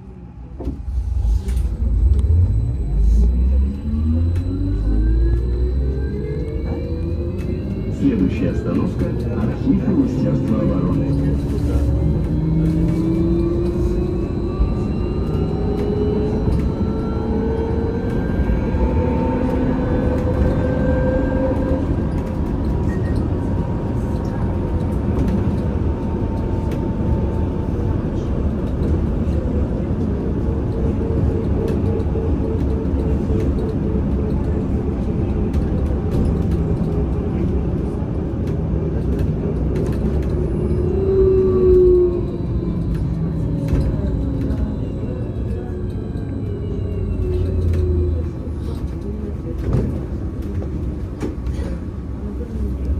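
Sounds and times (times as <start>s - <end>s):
trolleybus running rumble and hum: 0.0s - 52.9s.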